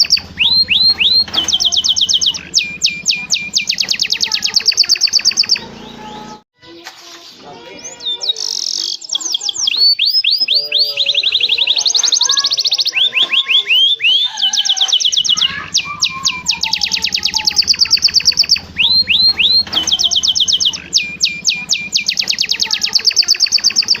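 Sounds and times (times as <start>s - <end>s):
canary singing trills: 0.0s - 6.4s, 7.0s - 24.0s.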